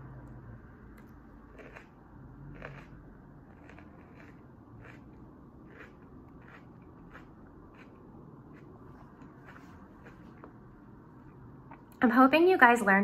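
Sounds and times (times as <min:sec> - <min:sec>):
faint crunching of chewed pepper: 0:01.0 - 0:10.5.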